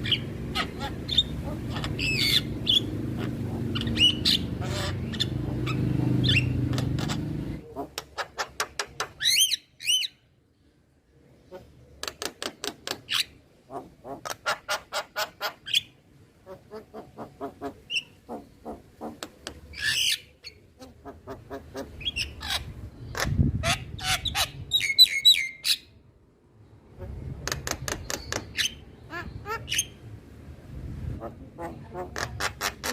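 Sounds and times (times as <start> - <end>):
bird squawks: 0.0 - 10.2.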